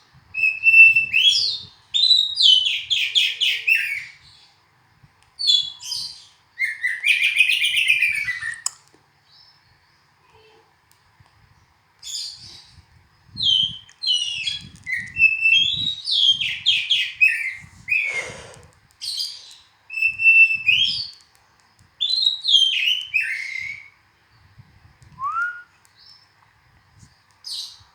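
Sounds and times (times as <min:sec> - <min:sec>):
bird whistling song: 0:00.4 - 0:04.4, 0:05.4 - 0:08.7, 0:12.0 - 0:18.4, 0:19.0 - 0:21.2, 0:22.0 - 0:24.0, 0:25.1 - 0:26.2.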